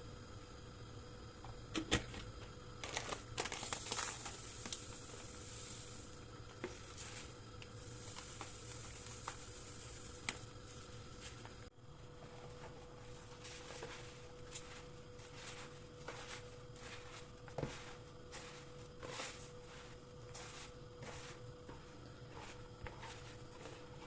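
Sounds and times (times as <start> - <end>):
faint steady hum: 0.0 - 24.0
crinkling rustle: 2.8 - 5.8.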